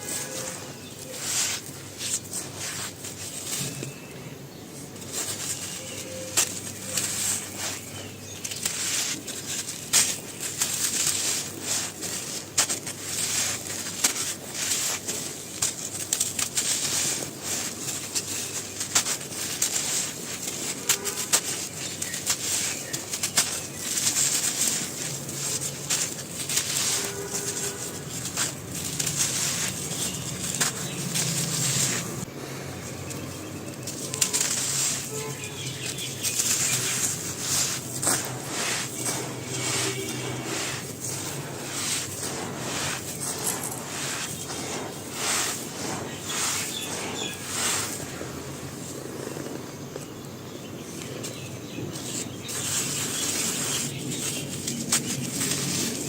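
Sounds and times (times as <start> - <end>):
brittle material crumbling: 5.0 - 32.3, 32.9 - 48.9.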